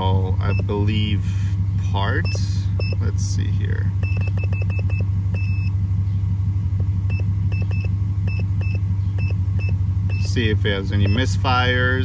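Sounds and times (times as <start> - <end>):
car engine idling: 0.0 - 12.0
short high beeps: 7.1 - 10.4.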